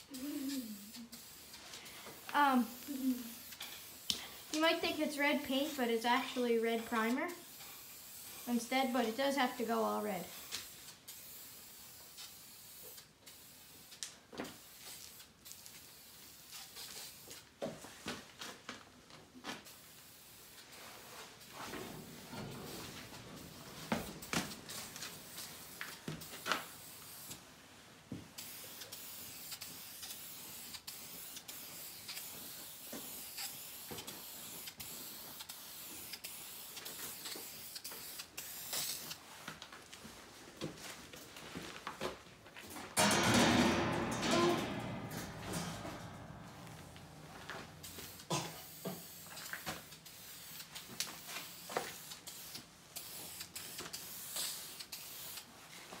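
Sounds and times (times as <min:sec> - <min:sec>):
spray paint hissing: 0:00.0 - 0:17.4, 0:19.6 - 0:21.2, 0:22.7 - 0:27.4, 0:28.4 - 0:39.2, 0:47.6 - 0:55.5.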